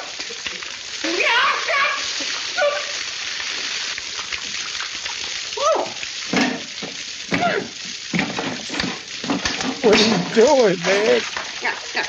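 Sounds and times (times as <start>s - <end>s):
steady hiss of spraying water: 0.0s - 12.0s
vocal yelps or grunts: 1.0s - 3.0s, 7.3s - 7.8s.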